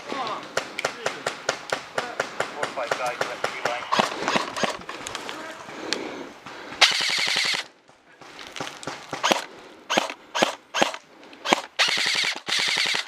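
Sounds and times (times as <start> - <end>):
airsoft rifle full-auto bursts: 6.8 - 7.7, 9.2 - 13.0
single sharp shots: 6.8 - 7.7, 8.9 - 13.0.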